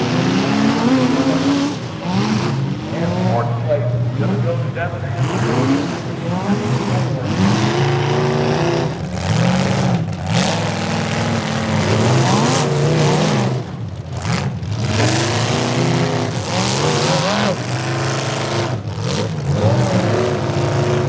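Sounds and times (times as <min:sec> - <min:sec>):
arena noise: 0:00.0 - 0:10.1
car engines revving: 0:00.0 - 0:21.0.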